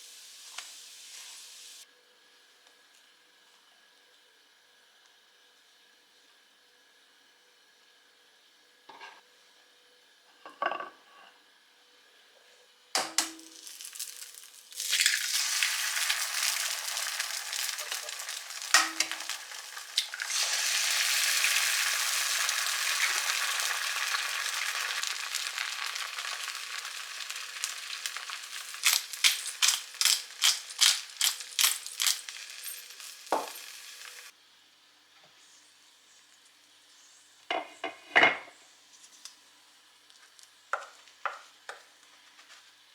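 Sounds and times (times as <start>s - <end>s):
food sizzling in a frying pan: 0.0s - 1.8s, 13.0s - 34.3s.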